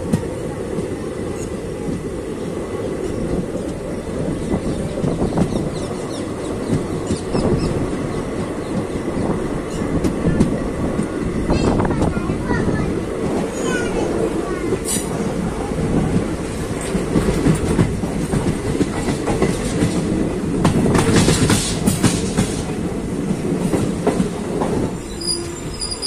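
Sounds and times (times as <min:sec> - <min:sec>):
train wheels rumbling on rails: 0:00.0 - 0:26.0
faint high wheel squeals: 0:25.0 - 0:26.0.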